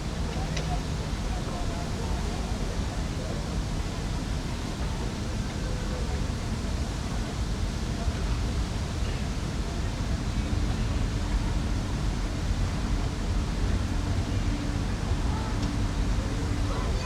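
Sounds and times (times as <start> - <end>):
faint indistinct voices: 0.0 - 17.0
distant city traffic rumble: 12.2 - 17.0.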